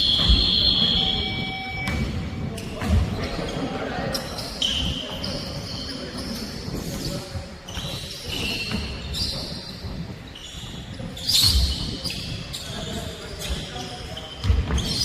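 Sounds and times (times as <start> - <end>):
shoes squeaking: 0.0 - 15.0
basketball bouncing on court: 1.8 - 3.3, 14.4 - 15.0.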